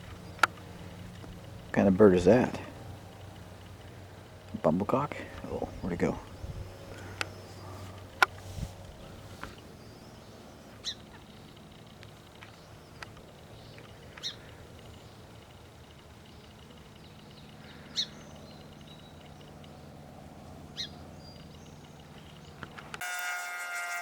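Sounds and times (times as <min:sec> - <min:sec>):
faint outdoor background: 0:00.0 - 0:24.0
small bird chirping: 0:09.0 - 0:20.0, 0:20.7 - 0:22.8.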